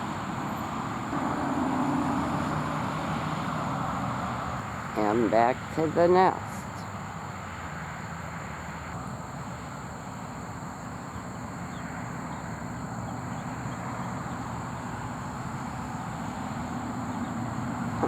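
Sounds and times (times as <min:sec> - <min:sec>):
high-pitched drone: 0:01.1 - 0:03.4.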